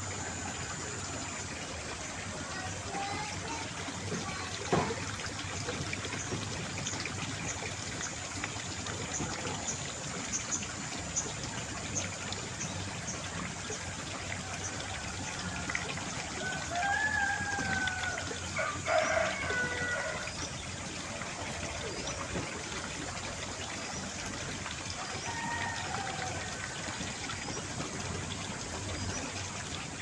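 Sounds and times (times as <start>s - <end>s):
water trickling: 0.0s - 30.0s
rooster crowing: 16.4s - 20.3s.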